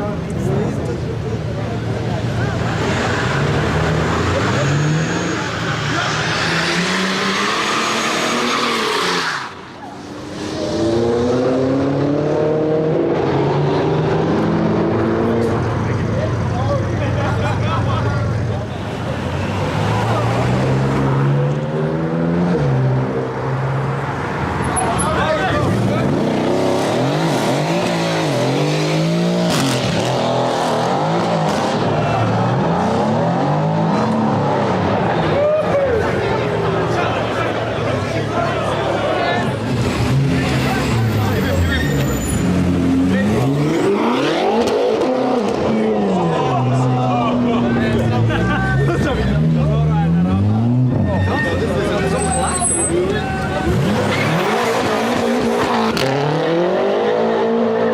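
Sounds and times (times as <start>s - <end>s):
car engine accelerating: 9.8s - 16.8s, 18.3s - 57.9s
sports car engine revving: 42.0s - 48.4s, 53.6s - 57.9s.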